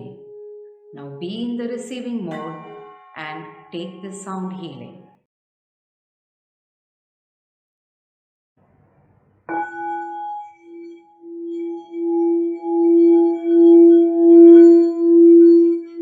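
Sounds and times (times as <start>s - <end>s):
singing bowl ringing: 0.0s - 4.8s, 9.5s - 16.0s.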